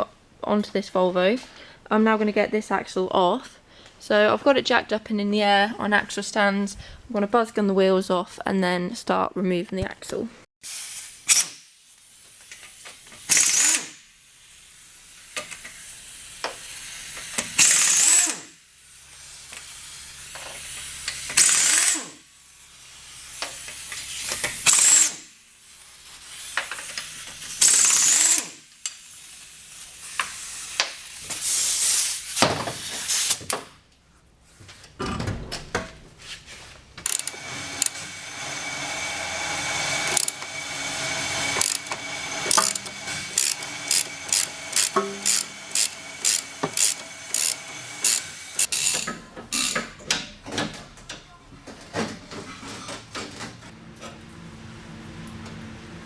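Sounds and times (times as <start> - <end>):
hiss of air: 10.6 - 17.4, 29.0 - 33.4
air impact wrench: 10.6 - 33.5, 37.0 - 50.0.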